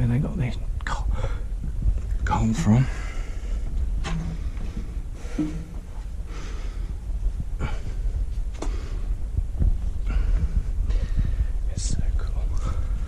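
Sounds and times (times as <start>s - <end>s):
steady low rumble: 0.0s - 13.0s
person breathing heavily: 1.1s - 1.6s, 2.8s - 11.7s, 12.5s - 13.0s.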